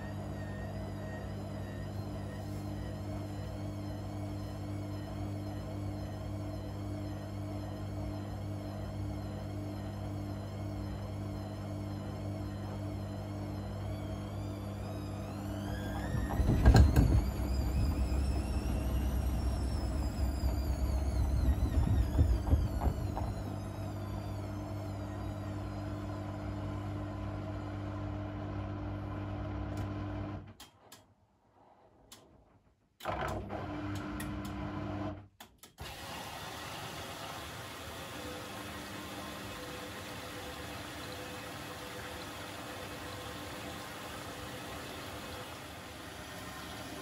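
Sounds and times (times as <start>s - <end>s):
steady hum: 0.0s - 27.7s
washing machine motor whine: 0.0s - 30.6s, 33.0s - 35.2s, 35.8s - 47.0s.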